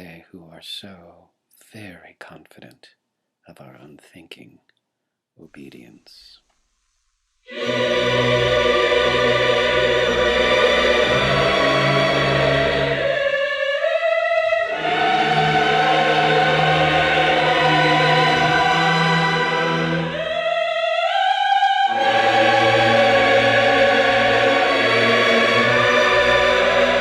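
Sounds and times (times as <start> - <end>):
choir singing slow chords: 7.5 - 27.0.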